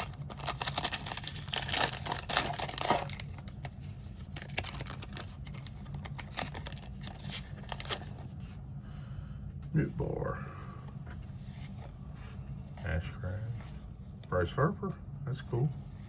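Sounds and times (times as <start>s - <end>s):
foil wrapper crinkling: 0.0s - 8.3s
cards being handled: 0.0s - 8.6s.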